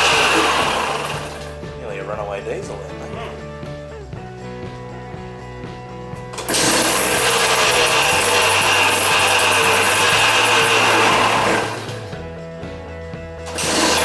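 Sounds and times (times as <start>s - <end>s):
two-stroke engine revving and idling: 0.0s - 1.7s, 6.4s - 12.2s, 13.5s - 14.0s.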